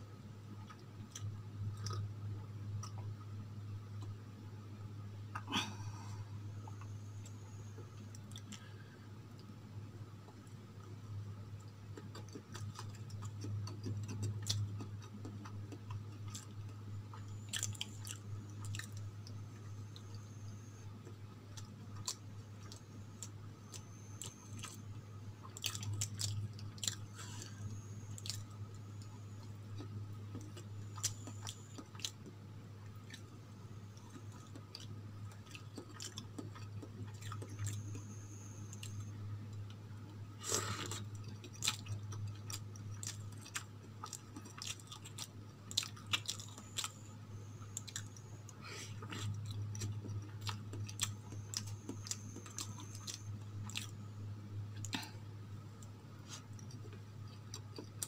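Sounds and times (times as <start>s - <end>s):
steady low hum: 0.0s - 58.0s
person chewing: 0.6s - 2.1s, 2.8s - 3.2s, 5.3s - 9.5s, 11.6s - 54.0s, 55.8s - 58.0s
wet mouth clicks and smacks: 12.0s - 16.8s.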